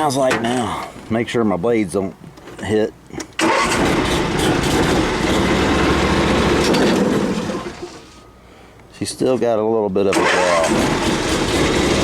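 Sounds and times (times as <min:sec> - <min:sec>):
riding mower engine hum: 0:03.4 - 0:08.0, 0:10.2 - 0:12.0.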